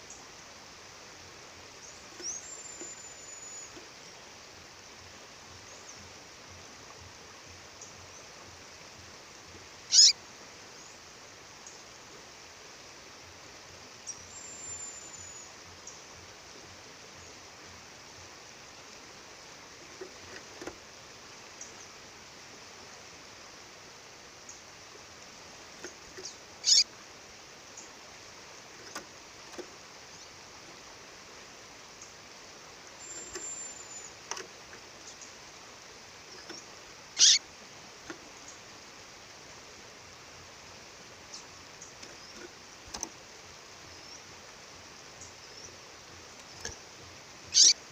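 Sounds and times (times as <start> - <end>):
bird chirping: 1.8 - 4.2, 9.9 - 10.2, 14.0 - 16.0, 25.8 - 26.9, 33.0 - 34.4, 36.2 - 37.4, 47.4 - 47.9
high thin bird whistles: 9.9 - 10.2, 47.5 - 47.8.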